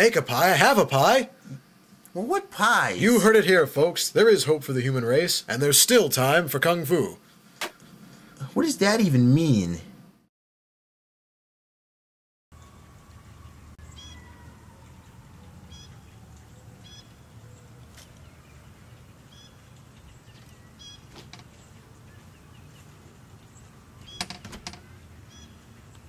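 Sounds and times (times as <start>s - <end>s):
birds chirping: 12.5s - 26.0s
door opening with sharp clicks: 24.0s - 24.9s.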